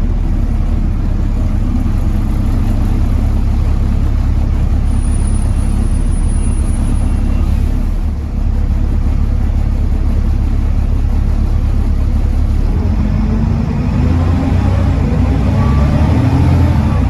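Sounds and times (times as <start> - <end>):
bus diesel engine running: 0.0 - 17.0.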